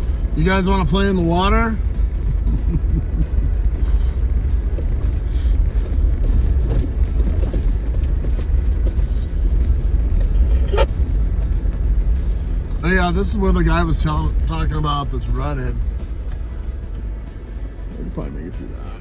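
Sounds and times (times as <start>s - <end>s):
body and suspension rattles: 0.0s - 19.0s
engine and tyres rumbling: 0.0s - 19.0s
brief high-pitched squeak: 10.2s - 10.9s.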